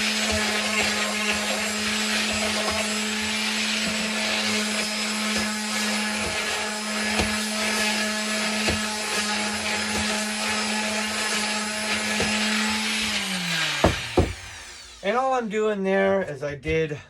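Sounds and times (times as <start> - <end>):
electric sander on wood: 0.0 - 15.4
sander knocking against wood: 11.8 - 13.0, 13.6 - 14.8.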